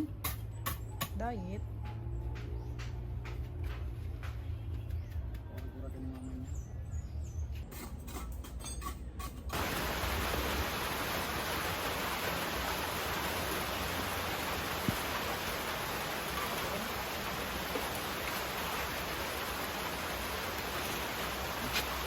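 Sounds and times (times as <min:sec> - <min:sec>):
heavy rain hissing: 0:09.5 - 0:22.0.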